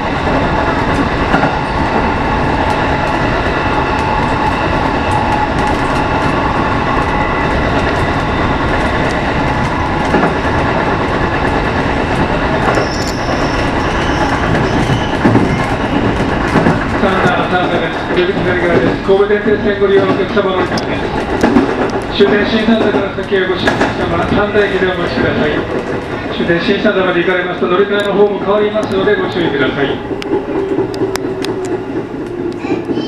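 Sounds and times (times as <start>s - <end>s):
train rolling rumble: 0.0s - 33.0s
wheels clicking over rail joints: 7.0s - 33.0s
high squeal: 12.6s - 16.4s.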